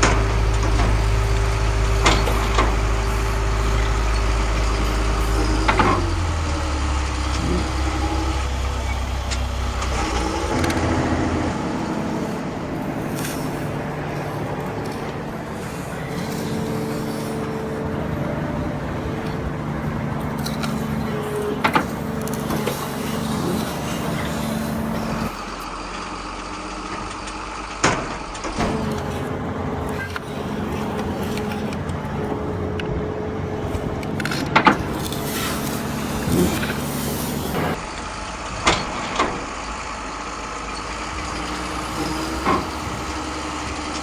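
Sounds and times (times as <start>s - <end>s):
truck engine running: 0.0s - 27.7s, 28.3s - 44.0s.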